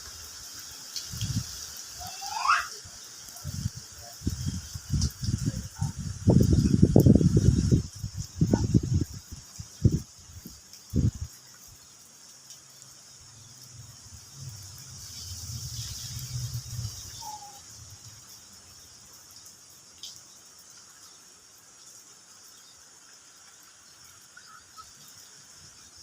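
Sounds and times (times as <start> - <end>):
crickets chirping: 0.0 - 26.0
wind on microphone: 1.1 - 1.5, 3.4 - 11.3.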